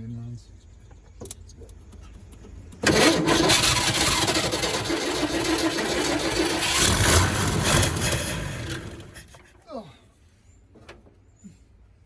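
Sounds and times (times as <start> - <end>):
truck engine cranking on starter: 1.2 - 9.6.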